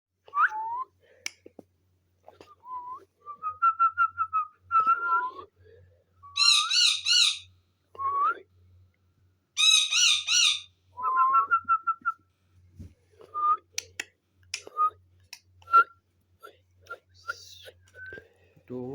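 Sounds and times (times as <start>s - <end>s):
parrot whistling: 6.3s - 7.5s, 9.6s - 11.9s
harsh parrot warbling calls: 6.4s - 7.5s, 9.6s - 10.7s.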